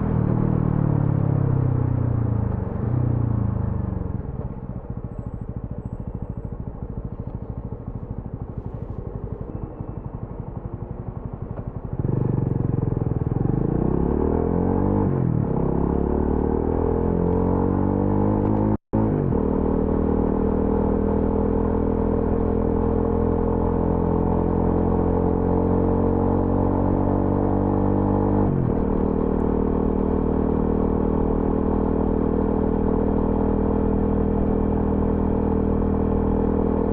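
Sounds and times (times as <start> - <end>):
motorcycle engine accelerating: 0.0 - 36.9.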